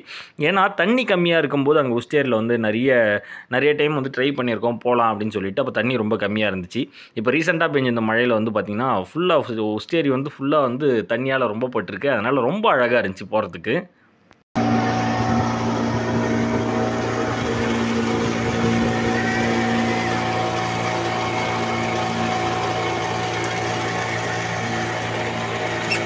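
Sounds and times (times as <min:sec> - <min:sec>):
motorboat engine droning: 0:14.6 - 0:26.0.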